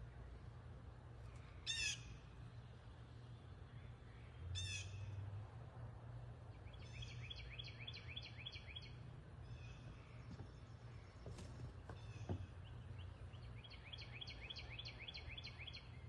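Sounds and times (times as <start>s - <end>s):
low steady hum: 0.0s - 16.0s
bird chirps: 6.6s - 16.0s.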